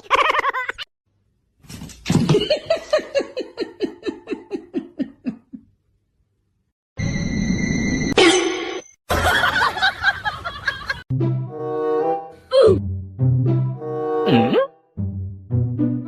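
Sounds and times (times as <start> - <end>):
person laughing: 2.3 - 5.7.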